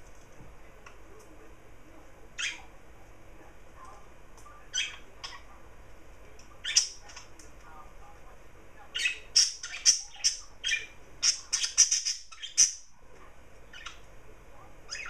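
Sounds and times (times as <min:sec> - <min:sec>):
garden birds calling: 0:02.3 - 0:02.8, 0:04.4 - 0:05.8, 0:06.4 - 0:07.6, 0:08.8 - 0:12.9, 0:13.6 - 0:15.0.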